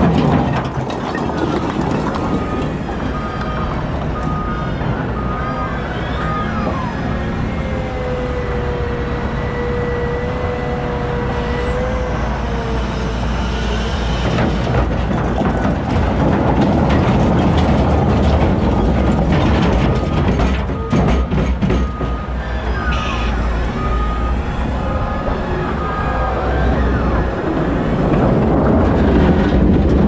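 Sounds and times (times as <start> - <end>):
clattering and rattling: 0.0 - 3.2, 14.2 - 22.2
wheel loader diesel engine: 0.0 - 30.0
reversing alarm beeping: 2.0 - 8.2, 19.8 - 28.0.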